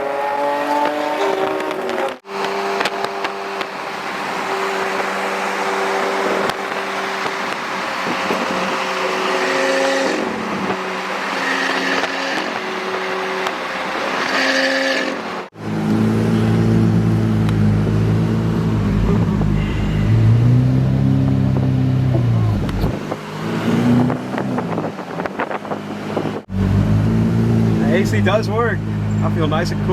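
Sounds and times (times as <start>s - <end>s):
car engine while driving: 0.0s - 29.9s
deep engine revving: 15.5s - 29.9s.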